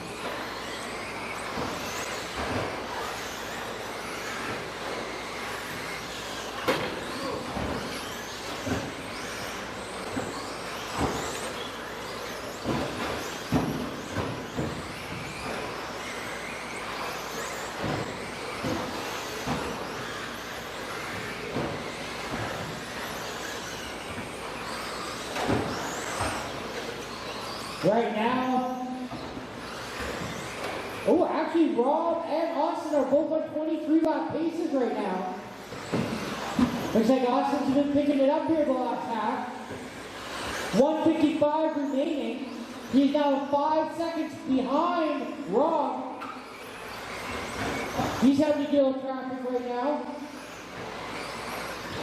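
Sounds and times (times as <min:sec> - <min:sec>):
rc truck motor whine: 0:00.0 - 0:52.0
sharp knocks and clacks: 0:10.9 - 0:27.0.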